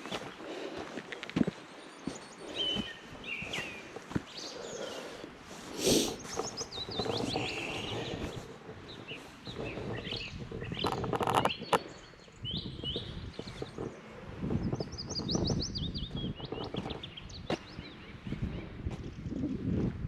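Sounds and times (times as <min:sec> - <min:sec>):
footsteps crunching: 0:00.0 - 0:12.0
small birds chirping: 0:00.0 - 0:19.5.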